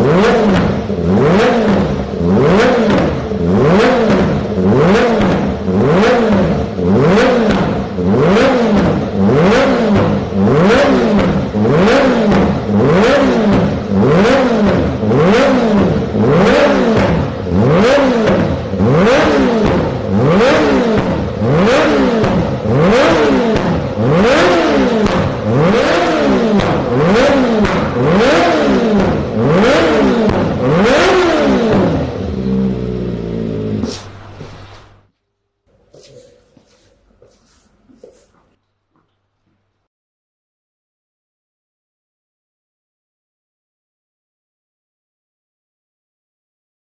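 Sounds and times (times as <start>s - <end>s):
motorcycle engine revving: 0.0s - 35.1s.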